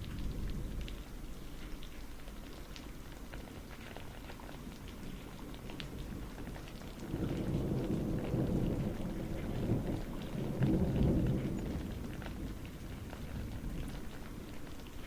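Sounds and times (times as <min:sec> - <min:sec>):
low rolling thunder: 0:00.0 - 0:01.4, 0:07.0 - 0:14.6
steady rain: 0:00.0 - 0:15.0.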